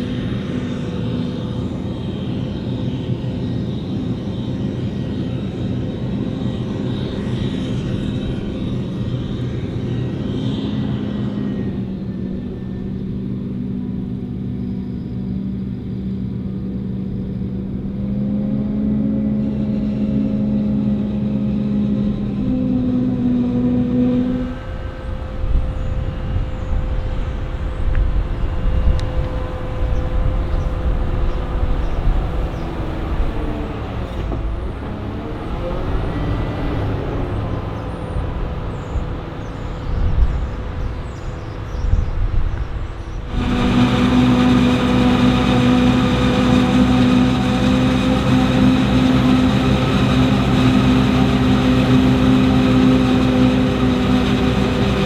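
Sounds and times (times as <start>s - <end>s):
diesel farm machinery engines: 0.0s - 55.0s
passing machine: 16.3s - 55.0s.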